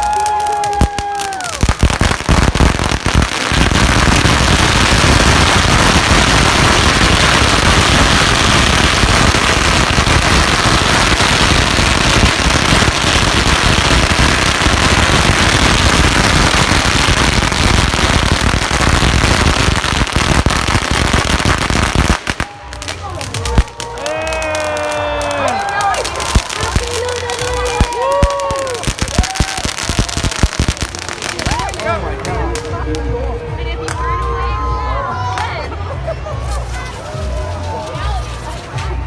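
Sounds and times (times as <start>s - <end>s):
firecrackers crackling: 0.0s - 34.6s, 35.3s - 39.0s.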